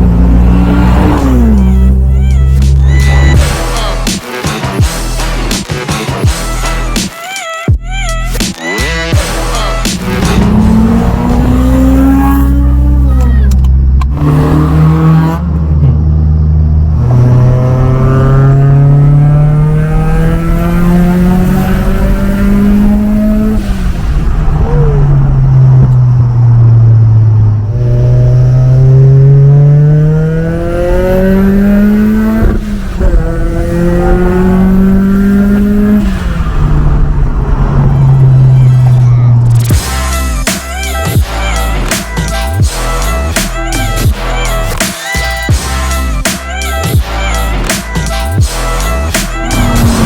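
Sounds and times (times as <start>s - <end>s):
car engine accelerating through gears: 0.0s - 3.4s, 10.0s - 39.8s, 49.0s - 50.0s.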